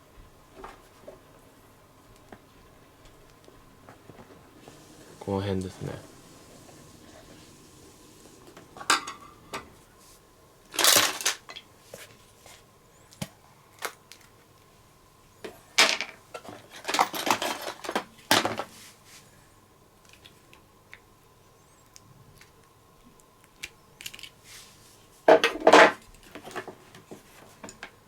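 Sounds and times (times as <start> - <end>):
small objects clattering on work surface: 10.7 - 11.7, 15.5 - 18.8, 25.3 - 27.9.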